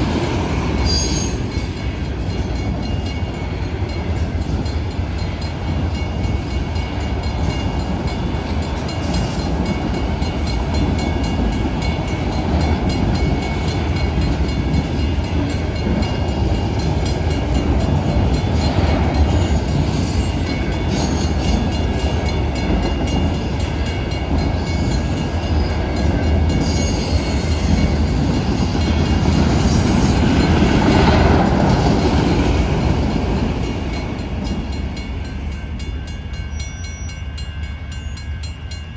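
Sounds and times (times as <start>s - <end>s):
freight train cars rolling: 0.0s - 38.9s.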